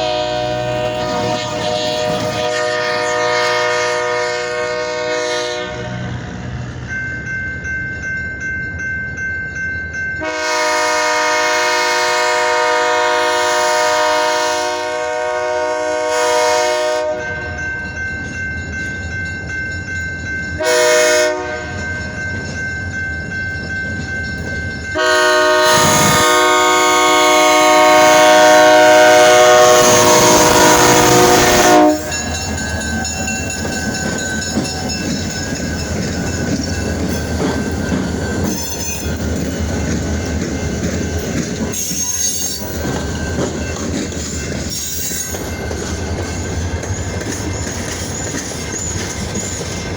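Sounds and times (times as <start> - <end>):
locomotive air horn blasts: 0.0 - 6.2, 10.2 - 17.3, 20.6 - 21.8, 25.0 - 32.2
locomotive engine rumbling: 0.0 - 8.4, 10.2 - 49.9
train wheels clattering on rails: 17.3 - 49.9.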